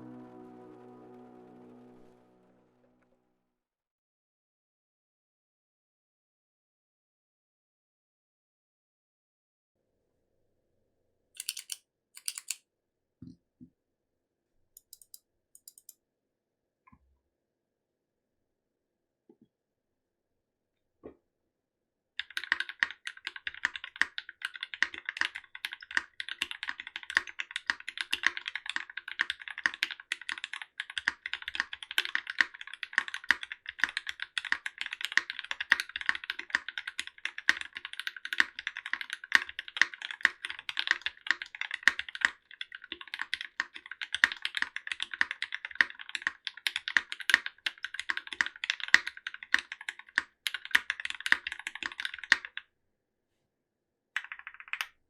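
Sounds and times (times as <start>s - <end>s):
fast typing on mechanical keyboard: 11.4s - 12.6s, 14.8s - 15.9s, 22.2s - 52.6s, 54.2s - 54.9s.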